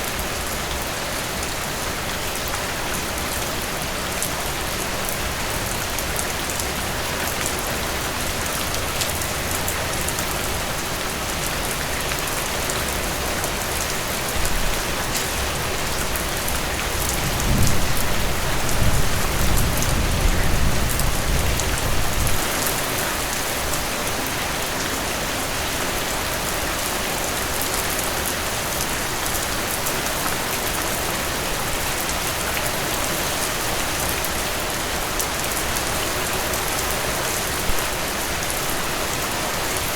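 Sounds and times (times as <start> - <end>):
heavy rain pouring: 0.0 - 39.9
low thunder rumble: 17.2 - 22.4.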